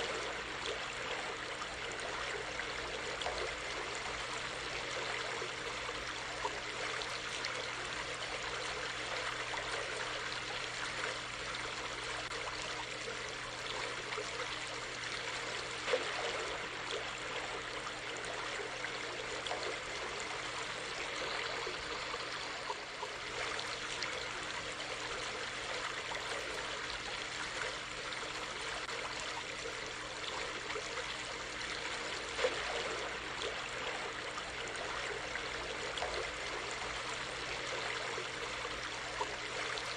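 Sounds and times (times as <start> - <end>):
stream of water flowing: 0.0 - 39.9
small splashes: 12.2 - 39.9.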